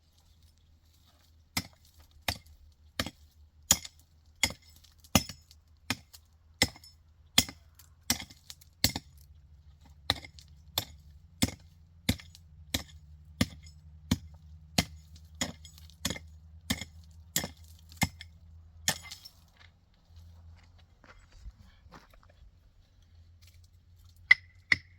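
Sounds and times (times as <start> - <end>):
tool striking sharp blows: 10.1 - 18.2.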